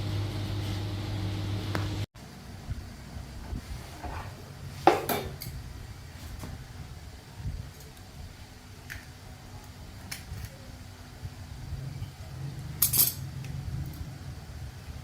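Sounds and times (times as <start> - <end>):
steady low rumble: 10.8 - 15.0
metal tools clinking: 12.8 - 13.3.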